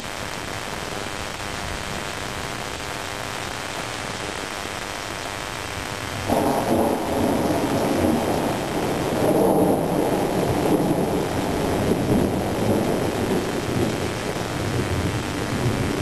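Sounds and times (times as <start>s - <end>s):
steady rain: 0.0s - 16.0s
thunder rumbling: 6.2s - 16.0s.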